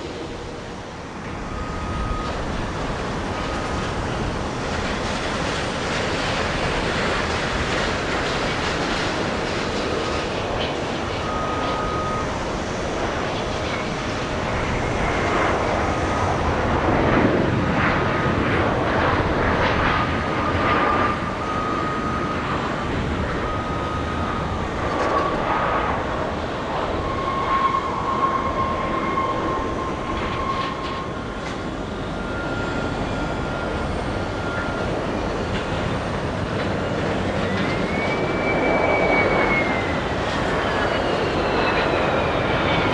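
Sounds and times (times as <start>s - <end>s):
jet engines roaring with whine: 0.0s - 42.9s.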